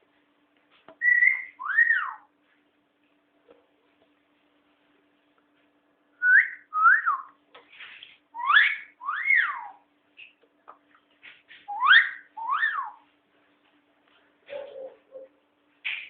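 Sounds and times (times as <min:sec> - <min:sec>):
parrot whistling: 0:01.0 - 0:02.3, 0:06.2 - 0:07.3, 0:08.4 - 0:09.8, 0:11.7 - 0:13.0.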